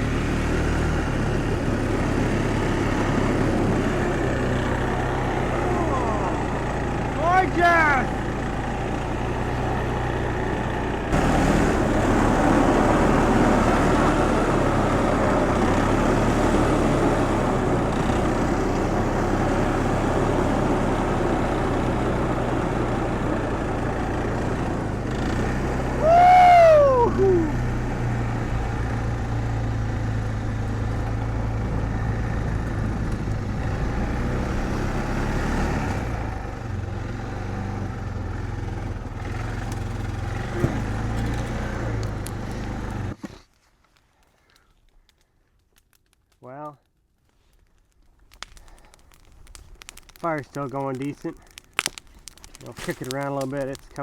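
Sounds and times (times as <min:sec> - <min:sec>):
small engine idling: 0:00.0 - 0:43.2.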